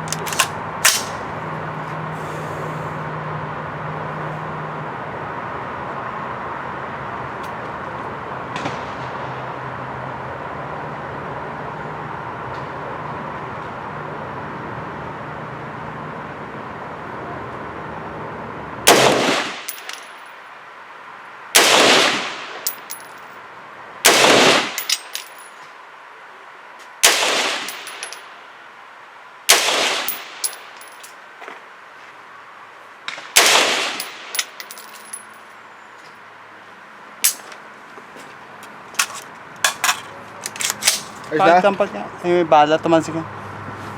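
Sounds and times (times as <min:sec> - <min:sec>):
rifle shots: 0:00.0 - 0:01.2, 0:18.9 - 0:19.9, 0:21.6 - 0:22.7, 0:24.0 - 0:24.9, 0:27.0 - 0:28.1, 0:29.5 - 0:30.6, 0:33.1 - 0:34.4
metallic clinks: 0:34.0 - 0:35.5, 0:39.0 - 0:41.4.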